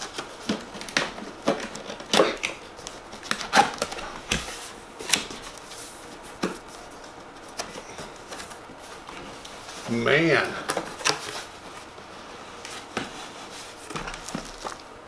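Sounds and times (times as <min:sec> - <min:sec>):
packaging being handled: 0:00.0 - 0:15.0.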